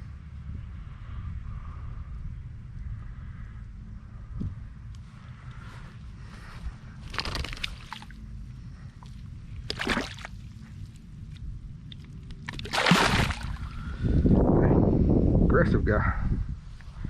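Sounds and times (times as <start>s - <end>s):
wind rumble on microphone: 0.0s - 17.0s
water sloshing and splashing: 7.0s - 8.2s, 9.0s - 13.8s.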